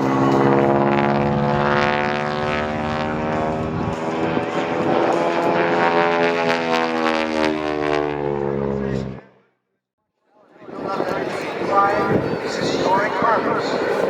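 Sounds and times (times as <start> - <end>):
propeller airplanes flying past: 0.0 - 9.4, 10.4 - 14.0.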